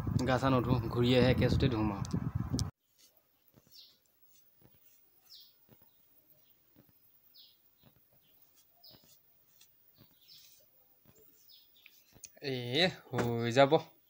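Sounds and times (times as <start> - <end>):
faint bird chirps: 3.2 - 12.5.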